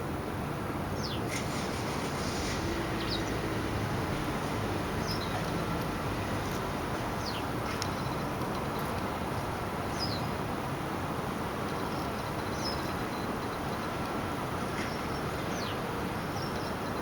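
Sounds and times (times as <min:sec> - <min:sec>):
low background noise: 0:00.0 - 0:17.0
small bird chirping: 0:05.0 - 0:05.5, 0:07.2 - 0:08.3, 0:09.9 - 0:10.3, 0:11.7 - 0:13.9.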